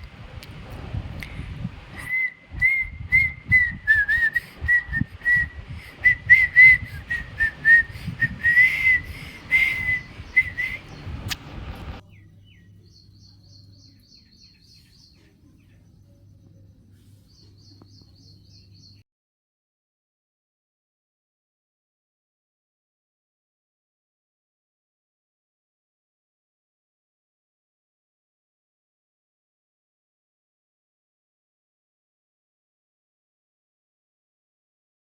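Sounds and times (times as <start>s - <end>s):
low rumbling: 0.0s - 12.0s
low hum: 0.0s - 12.1s
high whistled notes: 2.0s - 11.4s.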